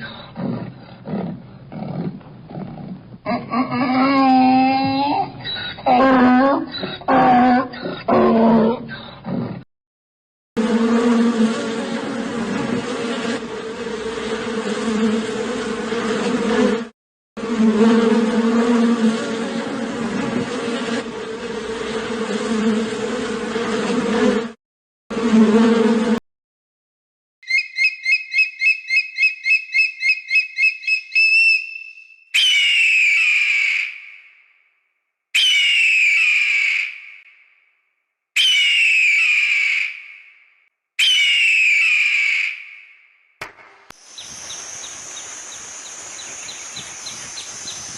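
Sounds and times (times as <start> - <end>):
insect buzzing: 10.6 - 26.2, 43.8 - 47.9
shrill call falling in pitch: 35.4 - 37.1, 38.4 - 40.1.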